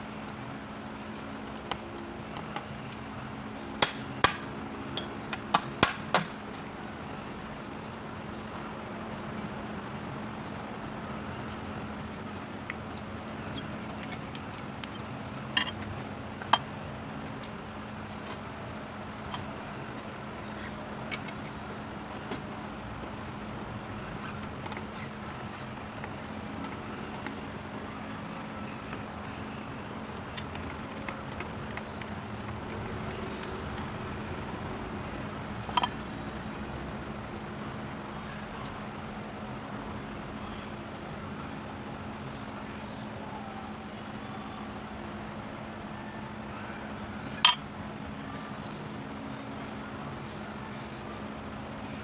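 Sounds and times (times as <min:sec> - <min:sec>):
steady background hum: 0:00.0 - 0:52.0
metal tools clinking and tapping: 0:12.1 - 0:17.6, 0:20.6 - 0:27.4, 0:30.1 - 0:33.9, 0:35.6 - 0:36.0, 0:47.3 - 0:47.6.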